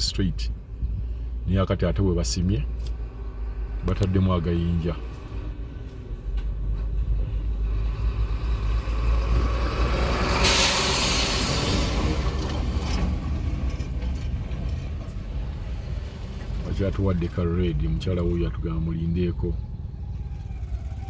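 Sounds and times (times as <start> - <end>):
heavy vehicle engine rumbling: 0.0 - 21.0
loud air hiss: 10.4 - 12.0.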